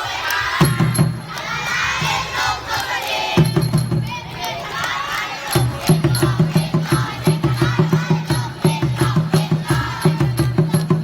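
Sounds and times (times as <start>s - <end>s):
children chanting: 0.0s - 11.0s
fast drum beat: 5.6s - 11.0s.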